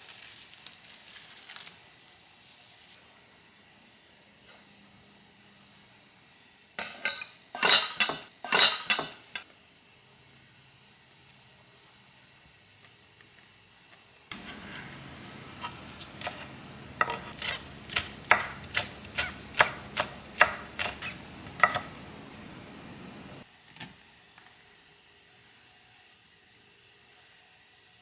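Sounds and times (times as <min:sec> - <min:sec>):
knife chopping on cutting board: 0:14.3 - 0:22.0.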